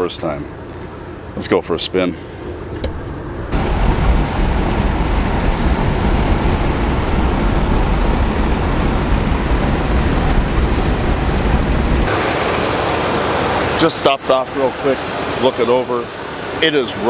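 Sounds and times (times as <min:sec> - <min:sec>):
car driving noise: 0:00.0 - 0:17.0
wind noise: 0:02.6 - 0:13.8.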